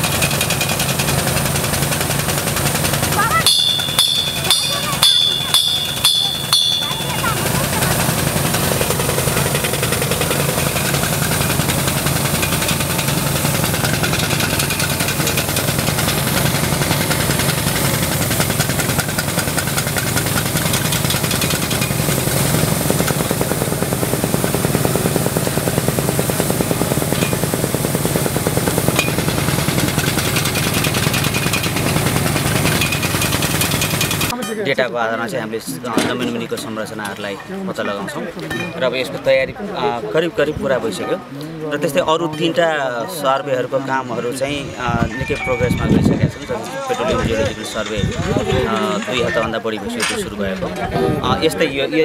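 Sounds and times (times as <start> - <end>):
drilling machine engine rattling: 0.0 - 34.4, 44.2 - 52.0.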